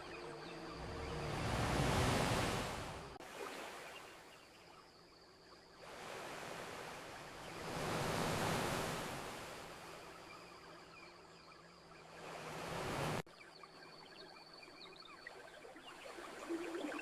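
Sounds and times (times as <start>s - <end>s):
ocean waves washing onto beach: 0.0s - 4.2s, 5.8s - 10.1s, 12.2s - 13.2s.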